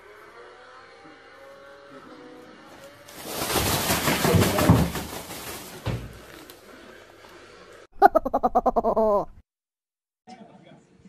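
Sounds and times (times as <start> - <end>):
cat skidding on wooden floor: 3.1 - 6.5.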